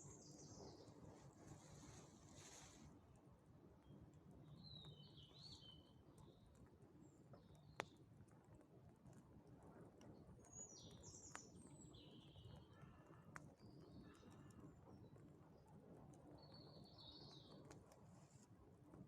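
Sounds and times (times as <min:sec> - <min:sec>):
faint bird chirping: 0:00.0 - 0:02.8
campfire popping: 0:05.9 - 0:19.0.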